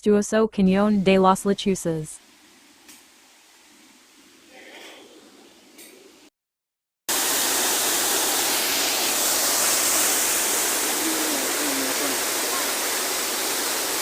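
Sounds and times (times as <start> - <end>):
waterfall rushing: 7.1 - 14.0.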